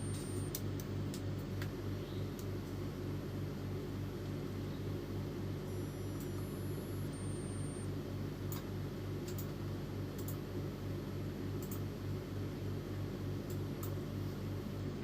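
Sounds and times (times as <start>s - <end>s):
printer motor humming: 0.0s - 0.5s, 5.6s - 7.9s.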